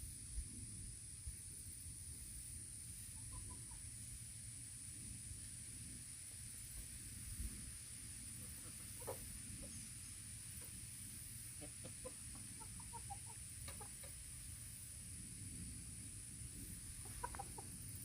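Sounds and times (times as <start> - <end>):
background hiss: 0.0 - 18.0
chickens clucking: 2.8 - 4.1, 8.2 - 14.9, 16.7 - 18.0.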